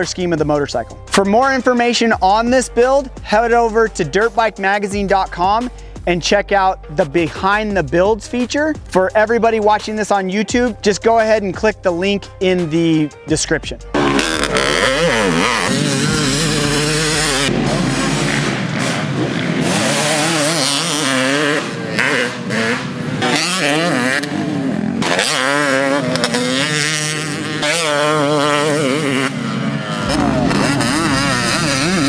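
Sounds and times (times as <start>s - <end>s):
two-stroke engine revving: 13.9s - 32.0s.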